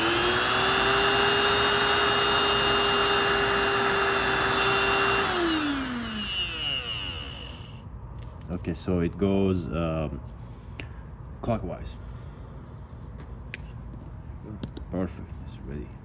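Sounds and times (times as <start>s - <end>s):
air compressor motor whining: 0.0s - 7.8s.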